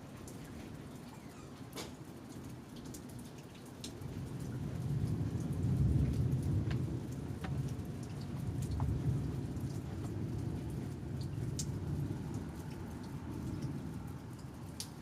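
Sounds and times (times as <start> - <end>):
raindrops dripping: 0.0 - 15.0
low rolling thunder: 4.2 - 14.2.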